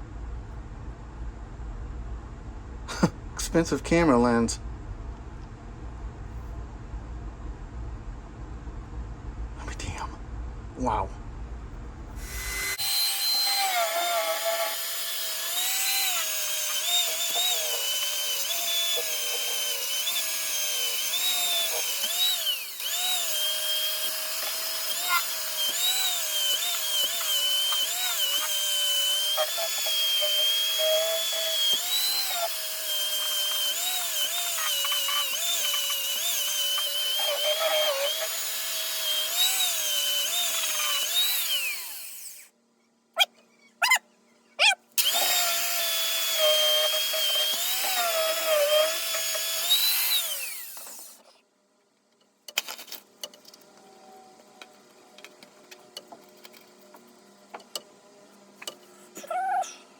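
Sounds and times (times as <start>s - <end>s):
power tool motor whine: 12.2s - 42.5s, 45.0s - 51.2s.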